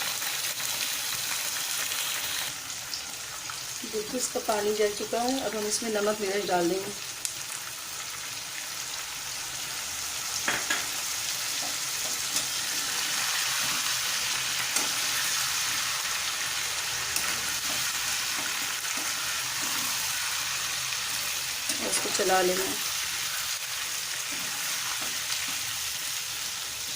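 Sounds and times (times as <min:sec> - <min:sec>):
chicken sizzling in hot oil: 0:00.0 - 0:26.9
spoon stirring and scraping pan: 0:10.4 - 0:26.2.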